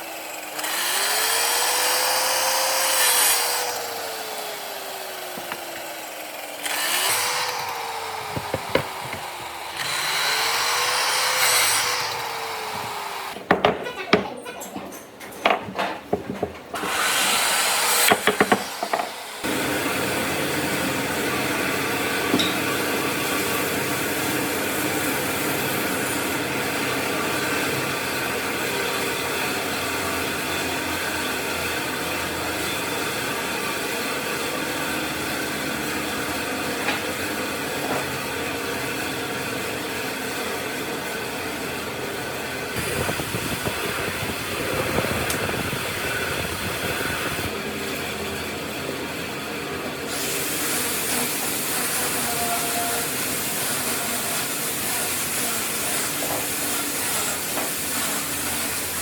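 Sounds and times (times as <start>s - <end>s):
power tool cutting wood: 0.0s - 13.6s, 16.7s - 59.0s
knocks: 8.3s - 9.6s, 13.4s - 16.6s, 18.0s - 19.1s.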